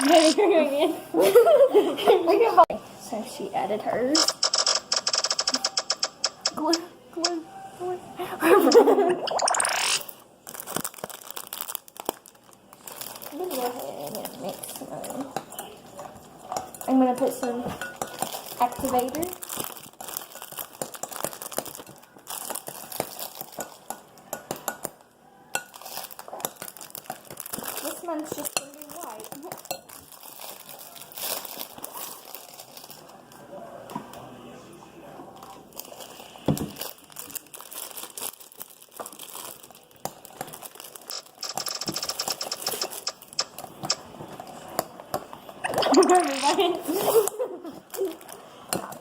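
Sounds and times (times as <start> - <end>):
spoon clinking and scraping bowl: 15.0 - 18.8, 25.6 - 26.6.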